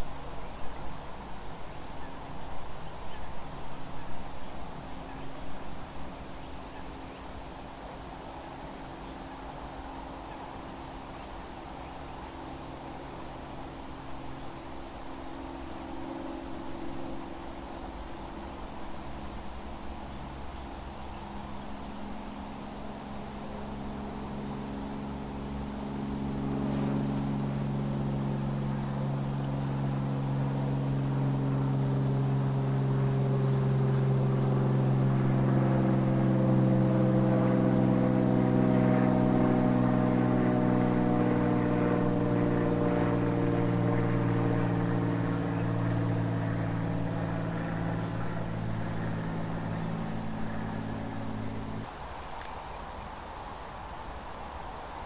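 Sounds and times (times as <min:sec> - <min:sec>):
engine drone passing by: 0:16.0 - 0:52.1.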